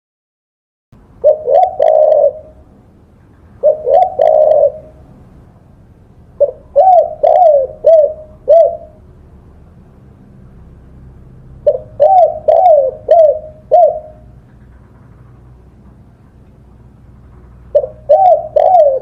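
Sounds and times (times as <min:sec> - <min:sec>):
dove cooing: 0:01.2 - 0:02.7, 0:03.5 - 0:05.2, 0:06.4 - 0:09.0, 0:11.6 - 0:14.9, 0:17.6 - 0:19.0.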